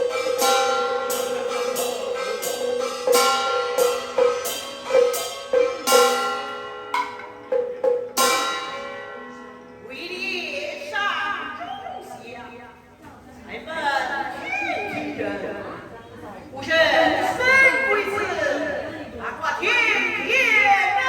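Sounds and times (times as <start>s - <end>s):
metal percussion strikes ringing: 0.0s - 10.0s
voices: 9.8s - 21.0s.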